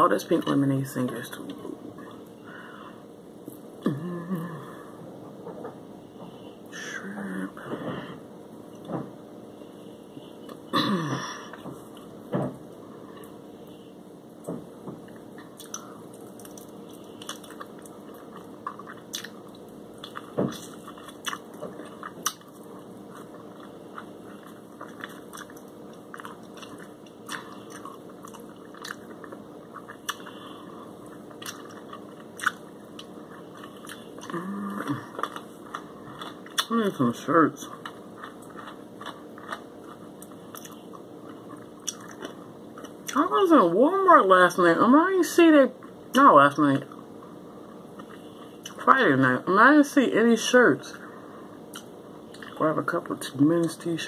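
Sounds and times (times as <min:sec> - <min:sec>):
faint steady hum: 0:00.0 - 0:54.0
person chewing crunchy food: 0:15.0 - 0:43.2, 0:46.9 - 0:48.8.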